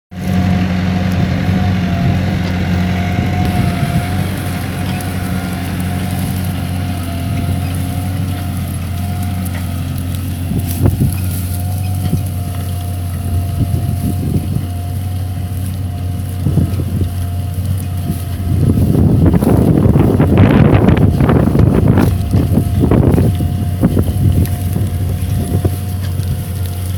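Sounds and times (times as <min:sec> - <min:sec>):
tractor diesel engine running: 0:00.1 - 0:26.9
thin wavering whine: 0:03.4 - 0:14.7.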